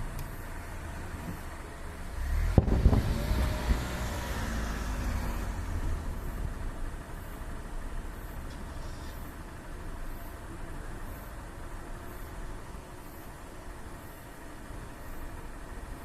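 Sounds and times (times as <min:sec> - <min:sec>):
rolling rumble: 0:00.0 - 0:10.7.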